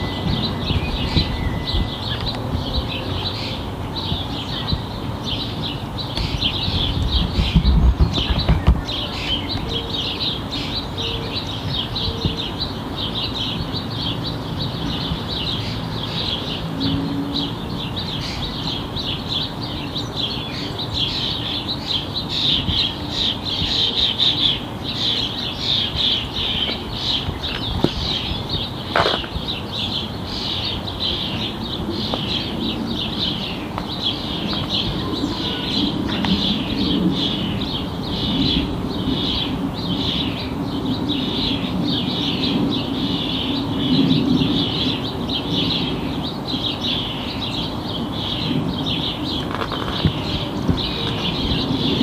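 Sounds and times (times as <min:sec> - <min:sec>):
high chirping call: 0:00.0 - 0:13.4
distant jet airliner rumble: 0:00.0 - 0:52.0.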